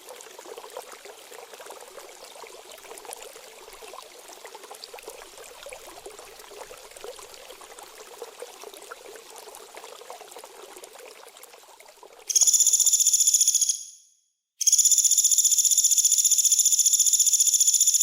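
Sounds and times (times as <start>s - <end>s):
trickling water: 0.0s - 13.0s.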